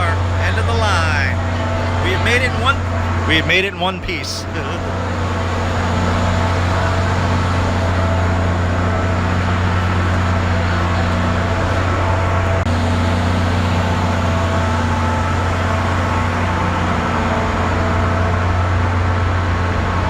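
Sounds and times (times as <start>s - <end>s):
steady high tones: 0.0s - 12.6s
low machinery drone: 0.0s - 20.0s.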